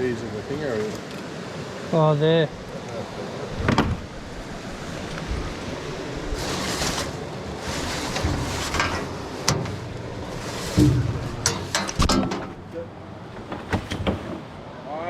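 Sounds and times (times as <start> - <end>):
wind buffeting microphone: 2.5 - 14.5.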